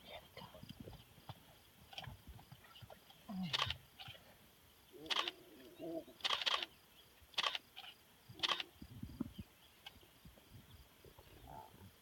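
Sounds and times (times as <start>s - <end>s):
camera shutters clicking: 5.1s - 5.4s, 6.2s - 6.7s, 7.4s - 7.6s, 8.4s - 8.6s.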